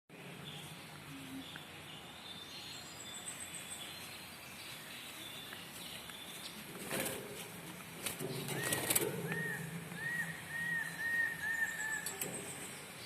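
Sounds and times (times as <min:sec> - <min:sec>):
background hiss: 0:00.1 - 0:13.0
high bird chirps: 0:08.4 - 0:13.0.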